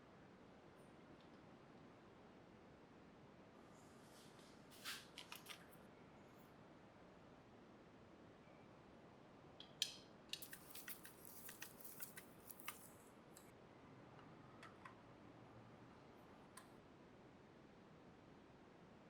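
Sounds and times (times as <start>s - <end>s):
small sharp clicks and taps: 9.6s - 13.5s.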